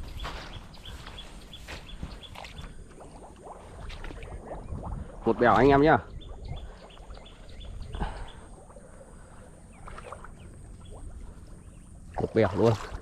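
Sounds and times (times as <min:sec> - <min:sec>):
small birds chirping: 0:00.0 - 0:12.7.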